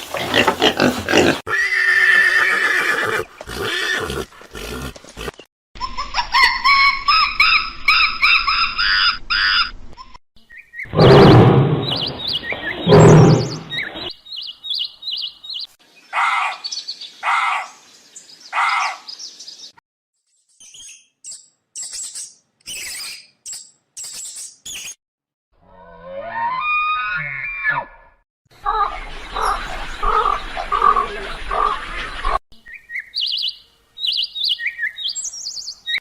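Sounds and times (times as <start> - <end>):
birds chirping: 10.4 - 19.8, 28.6 - 36.0
harsh animal call: 10.9 - 14.1
thin high bird chirps: 20.2 - 25.0.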